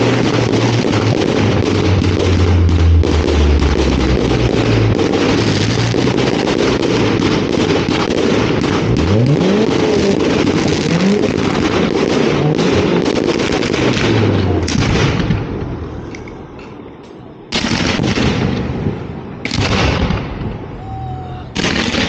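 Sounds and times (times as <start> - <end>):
fireworks launching and bursting: 0.0 - 22.0
fireworks rising whistle: 20.5 - 22.0.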